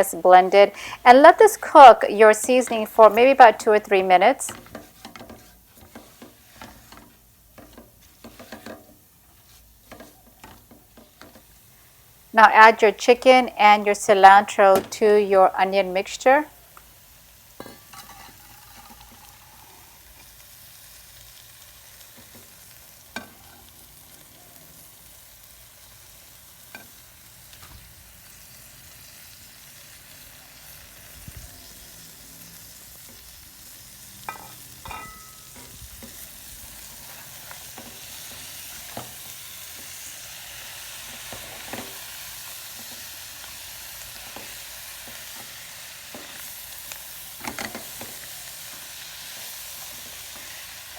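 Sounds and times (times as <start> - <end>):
chicken sizzling in a pan: 0.0 - 50.9
spoon scraping a pan: 1.8 - 11.6, 17.5 - 20.4, 22.1 - 24.3, 33.9 - 50.9.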